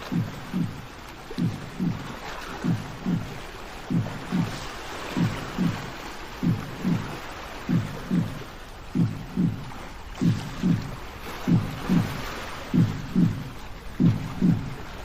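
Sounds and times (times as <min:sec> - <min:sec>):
sea waves washing: 0:00.0 - 0:15.0
low double thump: 0:07.7 - 0:08.4, 0:09.0 - 0:14.8.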